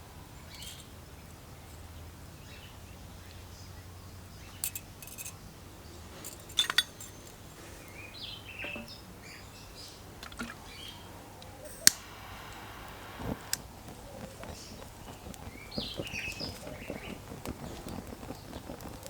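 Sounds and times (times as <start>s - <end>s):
birds chirping faintly: 0.0s - 19.0s
sharp clicks: 11.4s - 19.0s.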